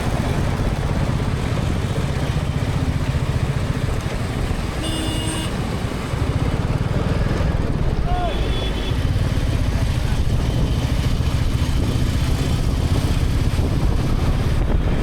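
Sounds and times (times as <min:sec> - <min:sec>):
motorcycle engine running: 0:00.0 - 0:15.0
road noise: 0:00.0 - 0:15.0
short horn beep: 0:04.8 - 0:05.6.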